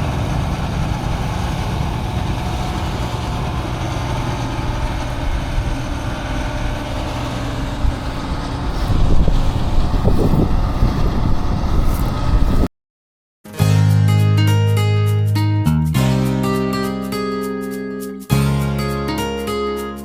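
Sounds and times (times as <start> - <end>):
combine harvester engine running: 0.0 - 12.7
wind on microphone: 0.0 - 12.7.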